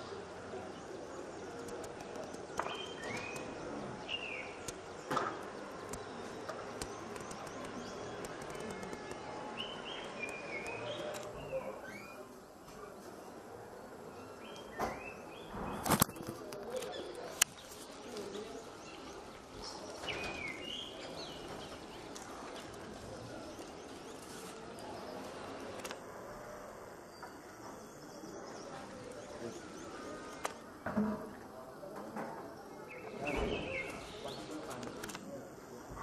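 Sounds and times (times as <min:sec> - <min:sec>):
steady background hiss: 0:00.0 - 0:36.0
bird chirps: 0:01.8 - 0:12.3, 0:32.9 - 0:34.6
sharp clicks: 0:06.7 - 0:09.2.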